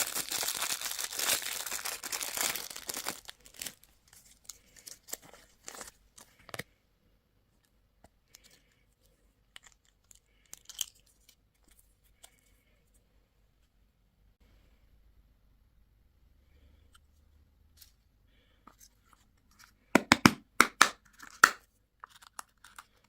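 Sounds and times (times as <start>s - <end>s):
candy wrapper crinkling: 0.0s - 6.6s, 9.5s - 12.4s, 21.1s - 23.0s.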